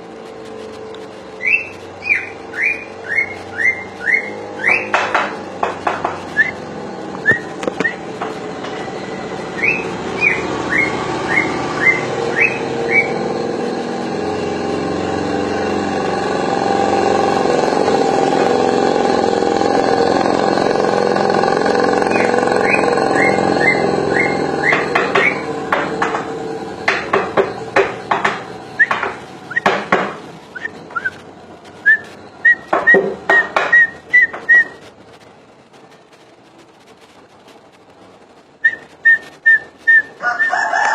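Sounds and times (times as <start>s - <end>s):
steady drone: 0.0s - 40.9s
sharp clicking bird calls: 0.9s - 5.4s, 9.6s - 13.2s, 22.0s - 25.5s
bird whistling sharp notes: 1.4s - 4.9s, 6.3s - 8.0s, 9.6s - 13.2s, 22.1s - 25.5s, 28.8s - 29.7s, 30.5s - 31.2s, 31.8s - 34.8s, 38.6s - 40.6s.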